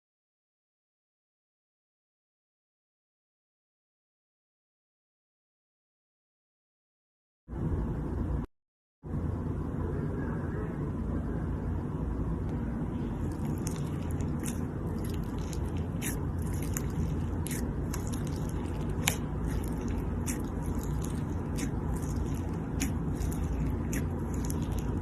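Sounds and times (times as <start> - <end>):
steady low rumble: 9.1 - 25.0
slime crackling and popping: 13.2 - 25.0.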